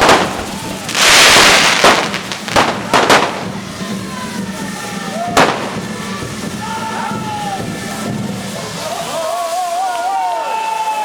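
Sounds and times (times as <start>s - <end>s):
crowd noise: 0.0s - 11.0s
firecrackers banging: 0.0s - 11.0s.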